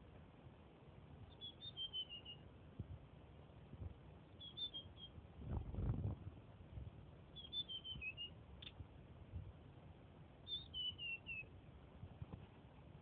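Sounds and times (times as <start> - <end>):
songbird singing high notes: 1.3 - 2.4, 4.4 - 5.2, 7.3 - 8.8, 10.4 - 11.5.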